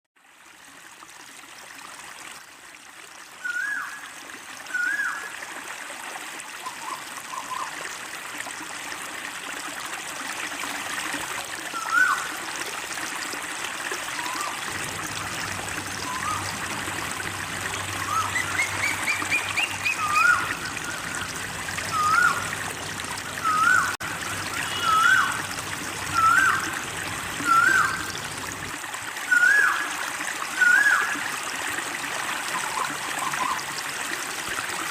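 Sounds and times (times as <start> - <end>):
trickling running water: 0.2 - 34.9
bird whistled call: 3.4 - 4.0, 4.7 - 5.3, 11.8 - 12.3, 14.2 - 14.6, 16.0 - 16.5, 18.0 - 21.2, 21.9 - 22.4, 23.4 - 25.4, 26.1 - 26.6, 27.4 - 28.2, 29.3 - 29.9, 30.6 - 31.2.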